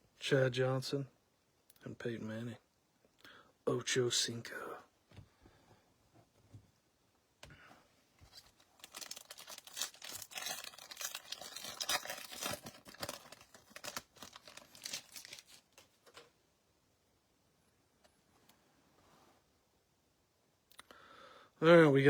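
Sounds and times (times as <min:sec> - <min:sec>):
foil wrapper tearing and crinkling: 0:08.3 - 0:16.2.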